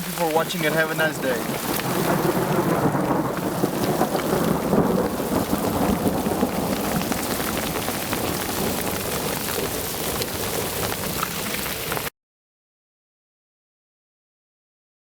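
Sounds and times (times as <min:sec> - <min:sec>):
heavy rain: 0:00.0 - 0:12.1
low rumble of thunder: 0:00.8 - 0:11.2
ice pellets ticking: 0:03.4 - 0:12.1.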